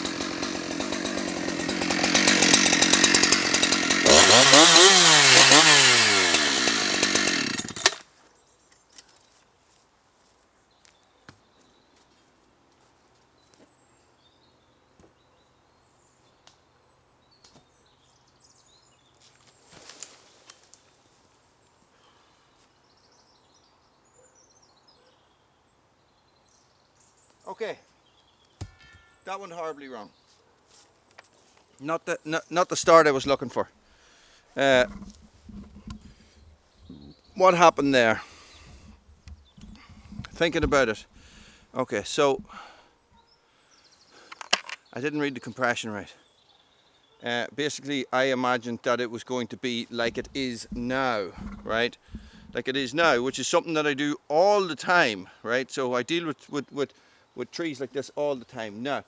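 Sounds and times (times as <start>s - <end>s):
chainsaw cutting tree: 0.0s - 8.0s, 32.8s - 33.6s, 37.4s - 41.6s, 50.1s - 52.6s
wood cracking sharply: 0.0s - 8.0s
rustle: 7.9s - 29.5s, 30.1s - 32.7s.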